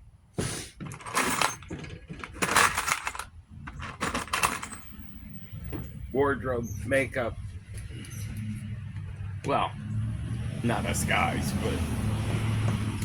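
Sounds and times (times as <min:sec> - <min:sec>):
metal parts clattering: 0:00.8 - 0:05.0.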